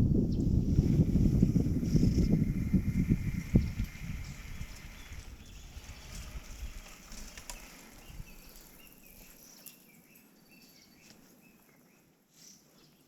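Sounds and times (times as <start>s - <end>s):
bird chirping: 7.5s - 13.0s.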